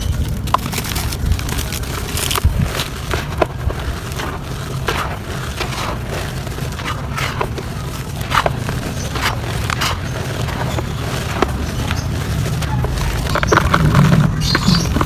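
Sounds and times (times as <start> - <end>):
dirt crumbling by hand: 0.0 - 15.0.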